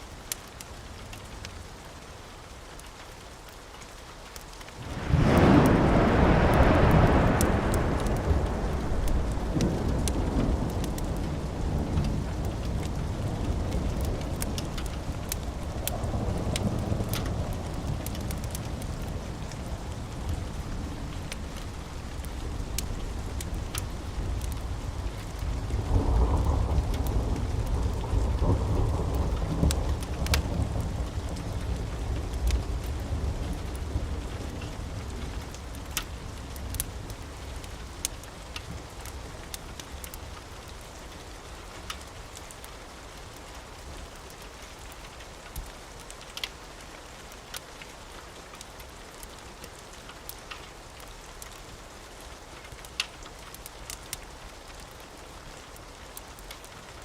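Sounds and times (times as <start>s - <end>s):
steady rain: 0.0s - 57.0s
sharp crackles: 2.5s - 57.0s
thunder rumbling: 4.8s - 37.9s.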